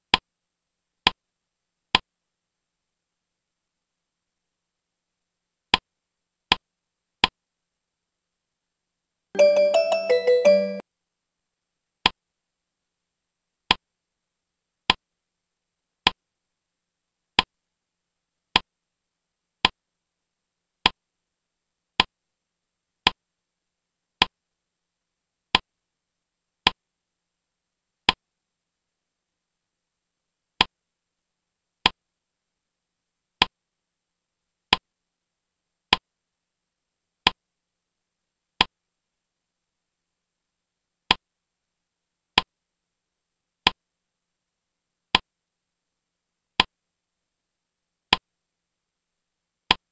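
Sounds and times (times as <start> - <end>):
electronic jingle: 9.4 - 10.8.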